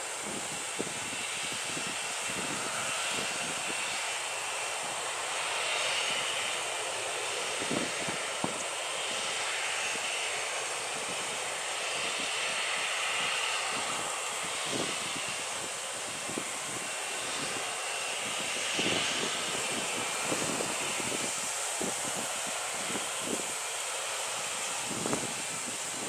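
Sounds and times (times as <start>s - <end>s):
jet engines running: 0.0s - 26.0s.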